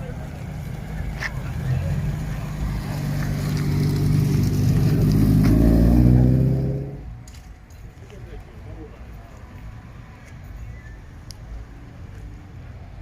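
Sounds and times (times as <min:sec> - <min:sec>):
car accelerating past: 0:01.5 - 0:07.1.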